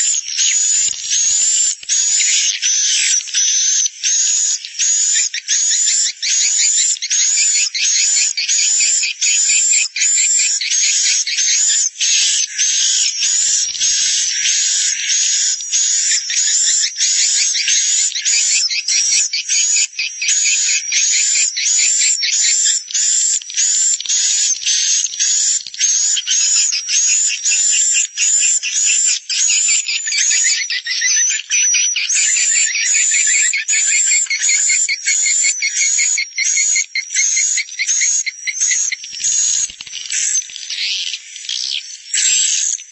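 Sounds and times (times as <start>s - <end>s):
rapid high bird chirps: 0.0s - 42.9s.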